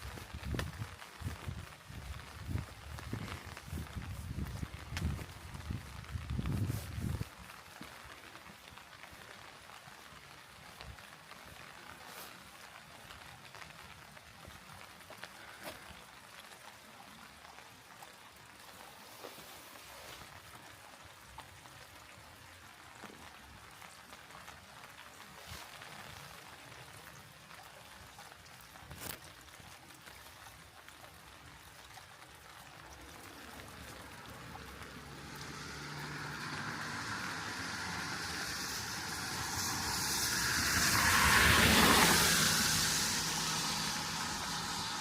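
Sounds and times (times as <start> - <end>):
vehicle passing on wet road: 0.0 - 17.6, 31.5 - 45.0
light rain falling: 0.0 - 45.0
water drips: 0.0 - 45.0.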